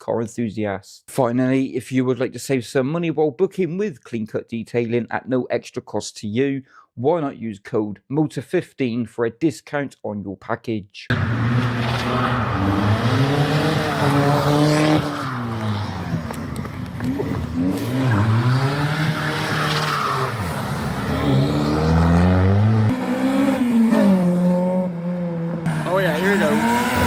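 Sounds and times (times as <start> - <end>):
car engine revving: 11.1 - 27.0.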